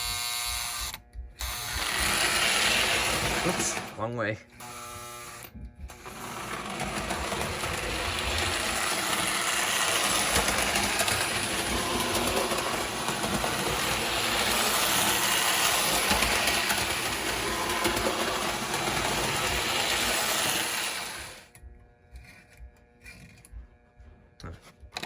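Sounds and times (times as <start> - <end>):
model train motor whirring: 0.0 - 21.6
wheels rattling over rails: 1.6 - 4.2, 5.9 - 21.5.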